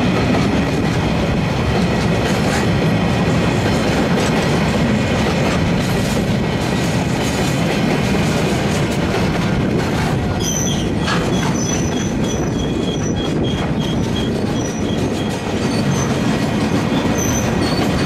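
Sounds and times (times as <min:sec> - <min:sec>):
train wheels rumbling and rattling: 0:00.0 - 0:18.0
high-pitched wheel squeal: 0:10.4 - 0:16.2, 0:16.9 - 0:18.0.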